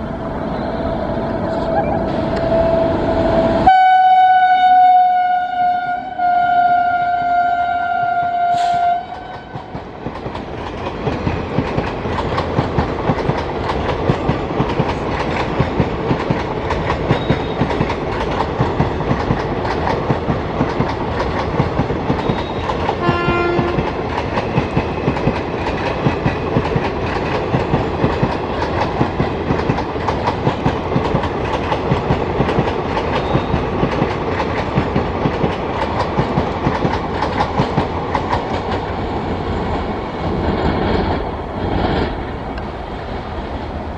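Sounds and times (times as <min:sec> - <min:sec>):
brief pitched tone: 0:00.5 - 0:03.4
train wheels clattering on rails: 0:08.5 - 0:42.8.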